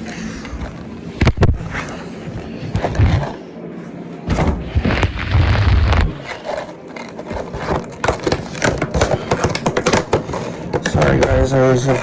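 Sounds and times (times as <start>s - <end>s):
heavy bumps: 4.2s - 12.0s.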